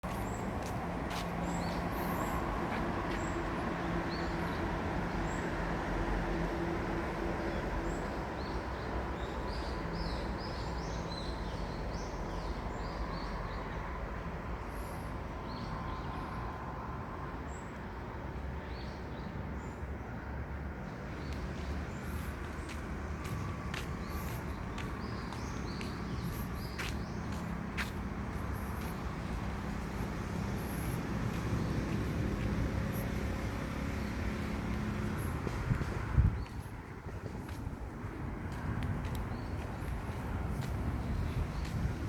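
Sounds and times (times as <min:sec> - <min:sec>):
distant traffic rumble: 0:00.0 - 0:42.0
small birds chirping: 0:20.9 - 0:42.0.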